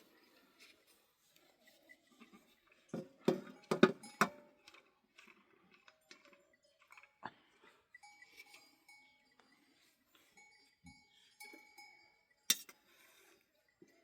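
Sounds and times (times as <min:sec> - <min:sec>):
livestock bells clinking: 0:01.8 - 0:14.0.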